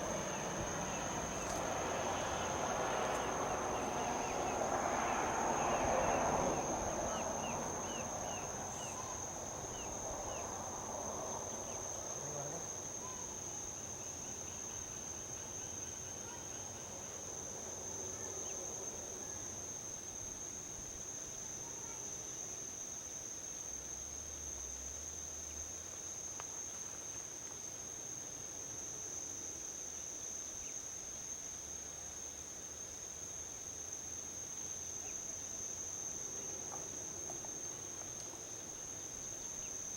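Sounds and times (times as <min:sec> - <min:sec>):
vehicle passing: 0:00.0 - 0:12.2
crickets trilling: 0:00.0 - 0:39.9.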